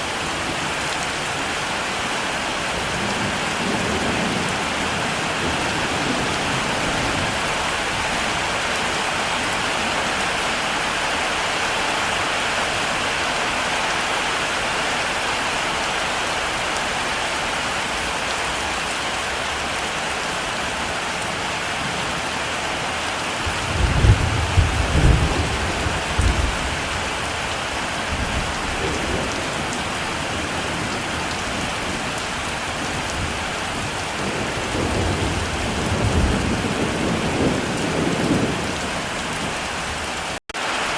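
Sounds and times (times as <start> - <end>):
heavy rain falling: 0.0 - 40.9
thunder rumbling: 23.4 - 39.9.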